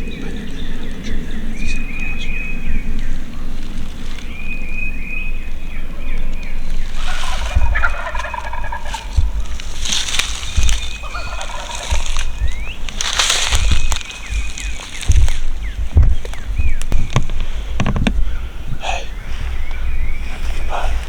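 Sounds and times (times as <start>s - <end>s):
high songbird phrases: 0.0s - 21.0s
turkey gobbling: 6.8s - 15.2s.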